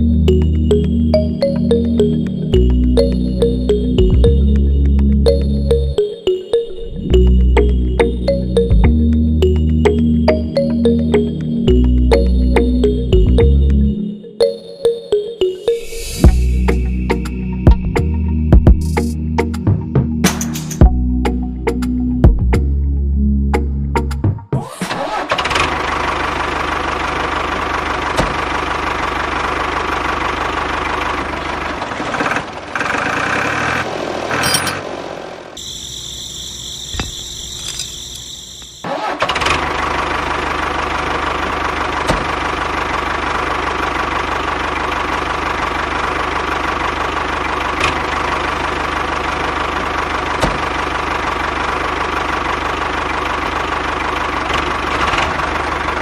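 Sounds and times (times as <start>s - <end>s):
small engine running: 25.0s - 56.0s.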